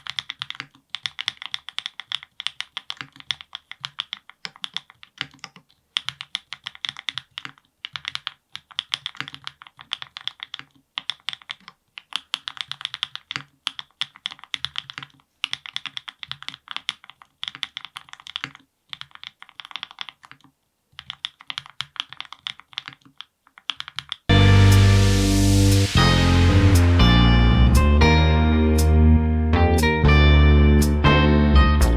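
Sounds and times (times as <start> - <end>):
typing on mechanical keyboard: 0.0 - 24.3.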